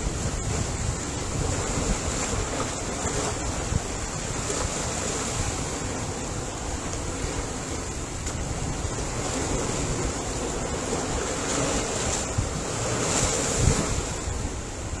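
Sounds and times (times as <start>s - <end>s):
ocean waves washing in: 0.0s - 15.0s.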